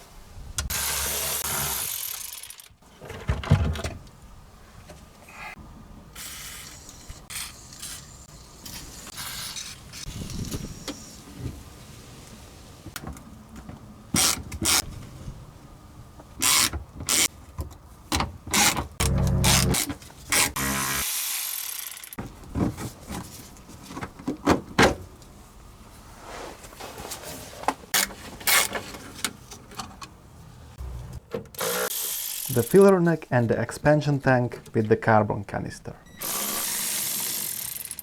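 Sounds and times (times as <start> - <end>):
small motor running: 19.0 - 19.8, 36.2 - 38.0.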